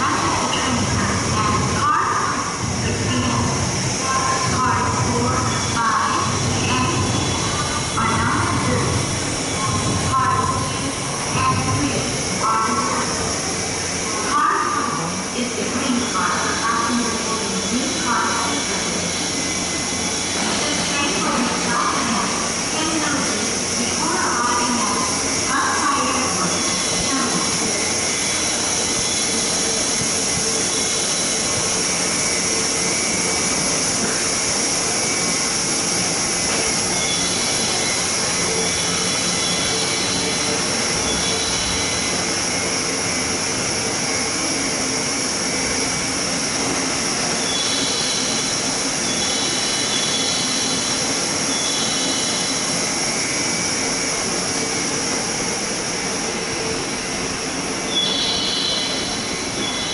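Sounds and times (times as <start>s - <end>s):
electric train running hiss: 0.0s - 59.9s.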